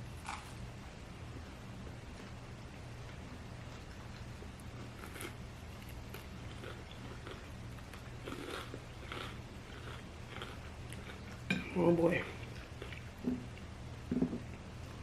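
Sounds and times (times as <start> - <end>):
person chewing food: 3.0 - 11.6, 12.2 - 15.0.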